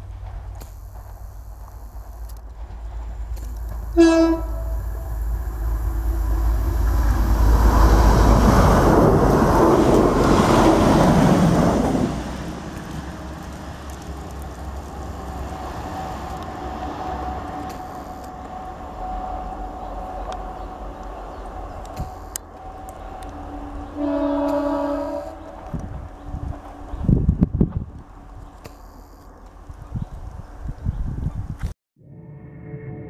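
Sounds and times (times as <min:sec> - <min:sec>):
diesel train passing: 0:00.0 - 0:28.6
distant train engine hum: 0:00.0 - 0:31.6.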